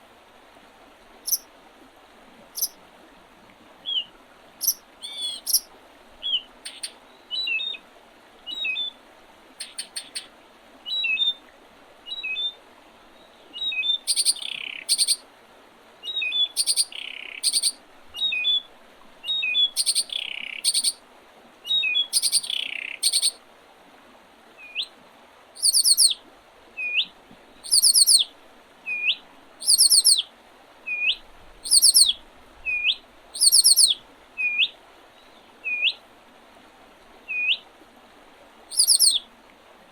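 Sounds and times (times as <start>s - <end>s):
short upswept bird calls: 1.2s - 1.5s, 2.6s - 2.8s, 3.8s - 7.8s, 8.5s - 9.0s, 9.6s - 11.4s, 13.2s - 15.2s, 16.0s - 21.0s, 21.6s - 23.4s, 24.6s - 24.9s, 25.6s - 26.2s, 26.8s - 36.0s, 37.2s - 37.6s, 38.7s - 39.3s
songbirds singing: 2.6s - 2.8s, 3.8s - 7.8s, 8.4s - 9.0s, 9.6s - 10.3s, 10.9s - 11.4s, 12.1s - 15.2s, 16.0s - 21.0s, 21.6s - 23.4s, 24.6s - 24.9s, 25.6s - 26.2s, 26.8s - 30.3s, 30.9s - 36.0s, 37.2s - 37.6s, 38.7s - 39.2s
rapid trilled bird phrases: 4.6s - 7.7s, 9.6s - 10.3s, 14.0s - 15.2s, 16.2s - 17.8s, 19.4s - 21.0s, 22.1s - 23.4s, 25.6s - 26.2s, 27.6s - 28.2s, 28.9s - 30.2s, 31.7s - 32.1s, 32.7s - 34.6s, 38.7s - 39.2s.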